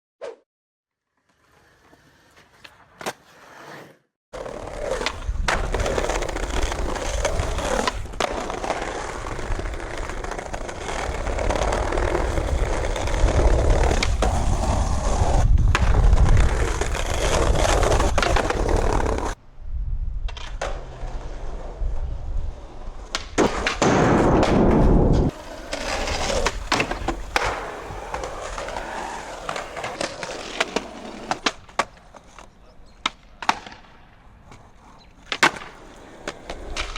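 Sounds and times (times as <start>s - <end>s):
skateboard wheels rolling on pavement: 1.0s - 36.9s
skateboard clacks: 4.4s - 19.4s, 22.6s - 36.9s.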